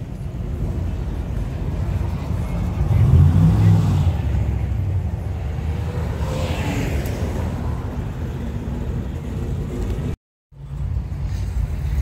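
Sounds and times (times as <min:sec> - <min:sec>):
vehicle engines rumbling: 0:00.0 - 0:12.0
vehicle passing by: 0:02.7 - 0:07.9.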